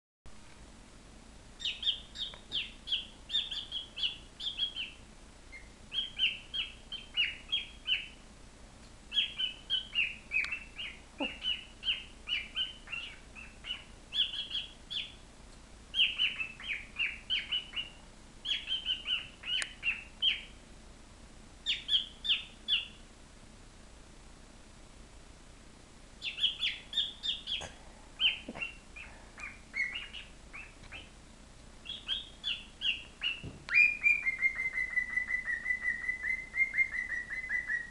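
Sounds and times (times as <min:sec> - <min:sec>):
bird chirping: 0:01.6 - 0:08.2, 0:09.1 - 0:15.3, 0:15.9 - 0:20.6, 0:21.6 - 0:23.1, 0:26.2 - 0:31.2, 0:31.8 - 0:37.9.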